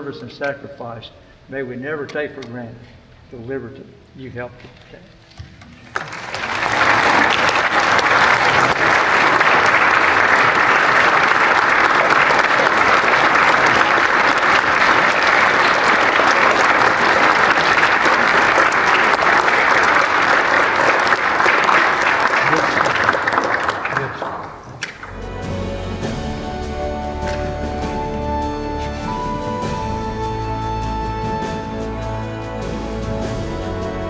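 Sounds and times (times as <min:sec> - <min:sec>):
audience applauding: 0:05.8 - 0:29.9.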